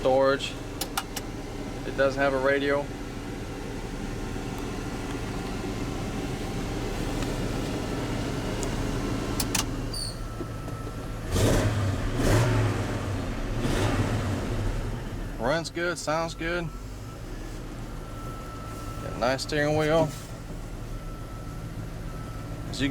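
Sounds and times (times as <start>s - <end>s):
truck engine idling: 0.0s - 22.9s
engine revving blips: 7.2s - 20.3s.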